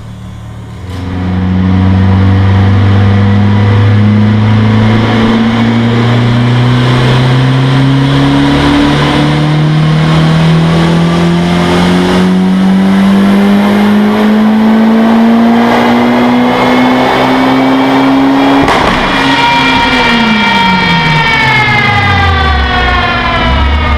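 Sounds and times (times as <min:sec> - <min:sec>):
car engine accelerating: 0:00.0 - 0:23.9.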